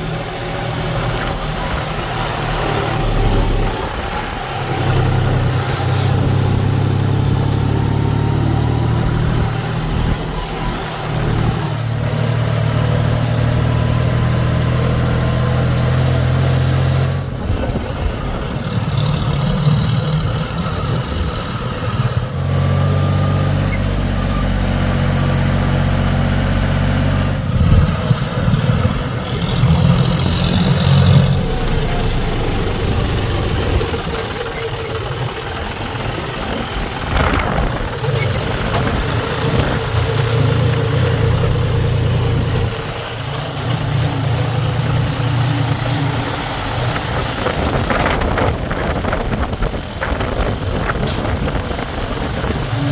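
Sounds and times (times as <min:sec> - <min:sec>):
diesel engine running: 0:00.0 - 0:52.9
clatter: 0:27.6 - 0:52.9.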